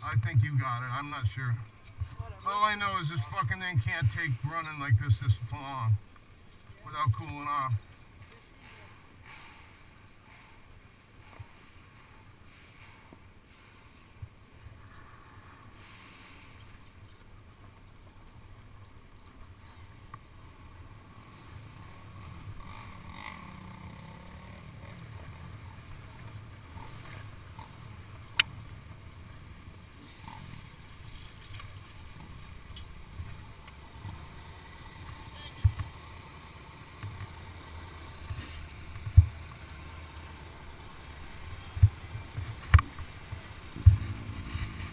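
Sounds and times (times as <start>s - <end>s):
two-stroke engine idling: 32.2s - 44.5s.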